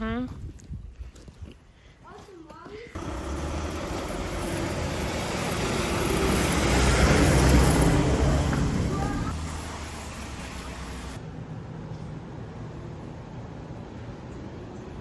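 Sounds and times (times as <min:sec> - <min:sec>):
road vehicle passing by: 0:03.0 - 0:11.2.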